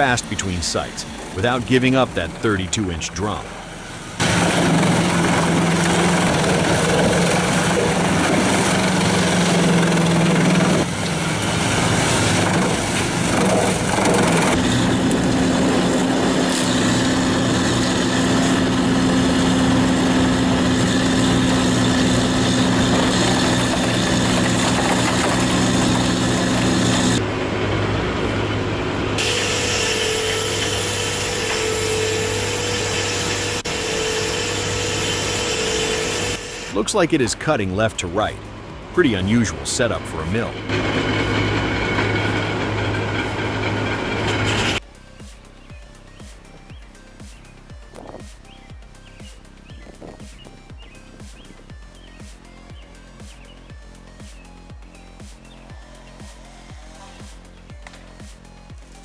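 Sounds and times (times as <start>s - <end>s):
wood-processing machinery running: 0.0s - 44.8s
wood being sawn: 4.2s - 27.2s, 29.1s - 36.8s, 40.3s - 44.8s.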